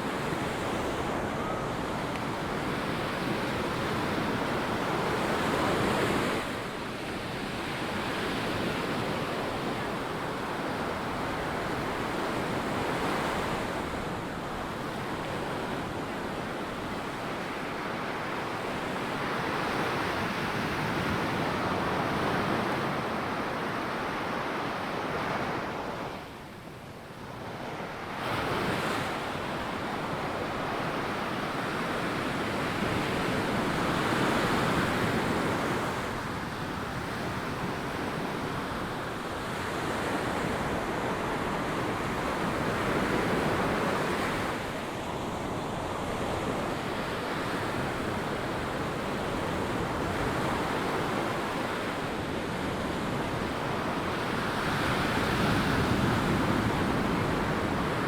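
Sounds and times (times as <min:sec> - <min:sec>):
ocean surf breaking on beach: 0:00.0 - 0:58.0.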